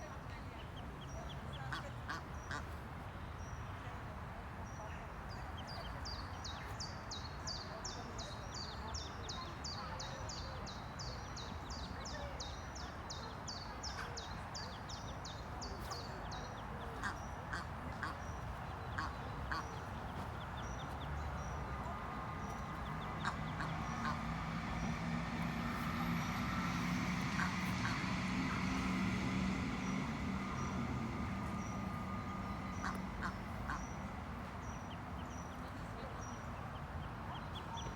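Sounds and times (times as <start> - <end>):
ducklings peeping: 13.9 - 37.9
low steady hum: 15.3 - 37.8
ducks quacking: 16.8 - 21.0, 22.0 - 35.2.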